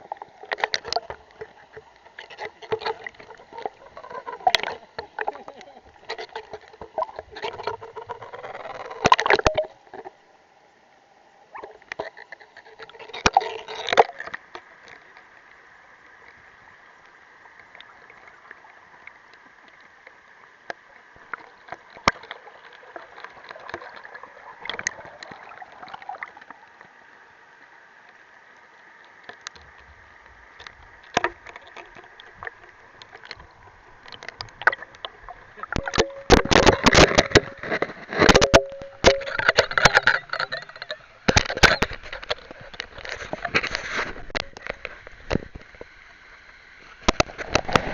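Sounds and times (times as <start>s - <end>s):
water splashing: 0.0s - 10.0s, 11.6s - 47.9s
muffled underwater stream rush: 0.0s - 47.9s
underwater clicks and knocks: 0.1s - 10.1s, 11.8s - 15.0s, 29.3s - 46.0s, 47.0s - 47.9s.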